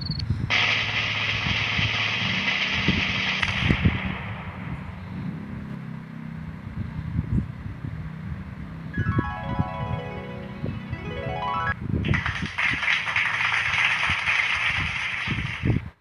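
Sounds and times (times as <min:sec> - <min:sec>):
snare drumroll: 0:00.5 - 0:04.8
explosion rumble with thuds: 0:00.5 - 0:05.6.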